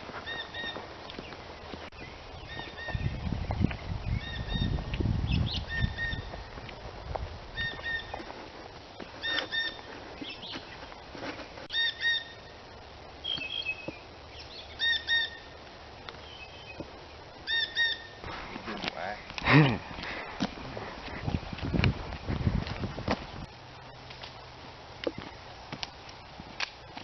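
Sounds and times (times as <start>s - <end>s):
bird calling paired notes: 13.2s - 15.6s, 17.5s - 18.2s.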